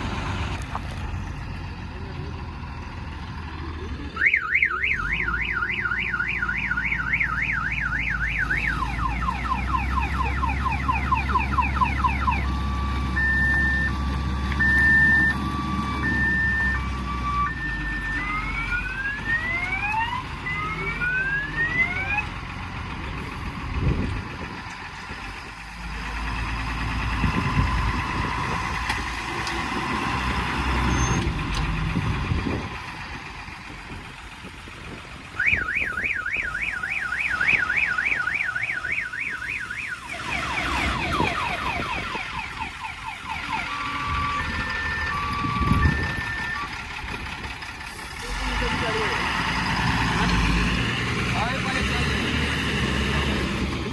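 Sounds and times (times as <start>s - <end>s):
engine running: 0.0s - 53.9s
electronic car alarm siren: 4.2s - 22.3s, 35.4s - 46.7s.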